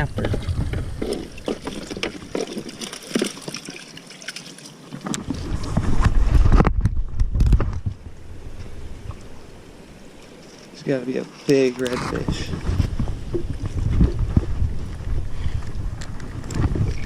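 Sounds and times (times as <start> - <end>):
wind buffeting microphone: 0.0 - 2.8, 5.1 - 10.2, 11.8 - 17.0.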